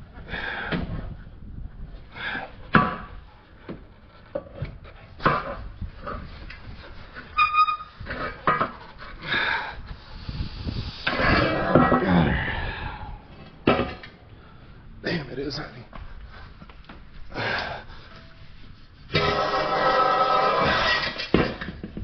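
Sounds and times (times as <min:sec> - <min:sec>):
tools clunking on car exhaust: 0:13.3 - 0:14.2.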